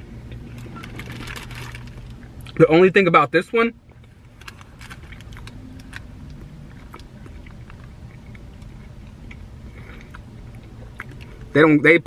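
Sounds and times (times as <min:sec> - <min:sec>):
low steady hum: 0:00.0 - 0:12.0
person chewing crunchy food: 0:04.0 - 0:11.5.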